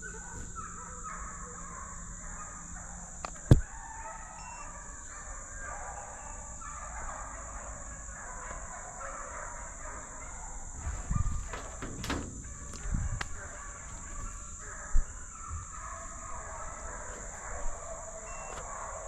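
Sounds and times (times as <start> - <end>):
hounds baying in the distance: 0.0 - 19.0
low thumps: 10.7 - 15.7.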